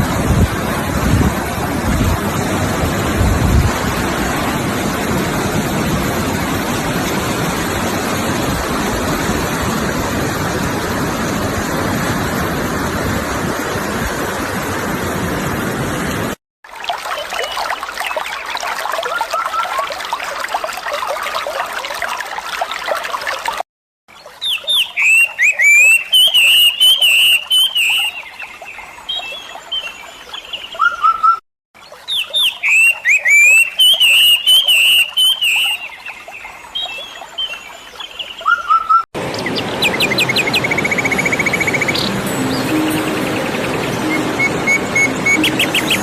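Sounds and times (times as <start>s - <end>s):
running water: 0.0s - 31.1s, 31.8s - 46.0s
trilling birdsong: 24.1s - 46.0s
songbird chirping: 24.2s - 46.0s.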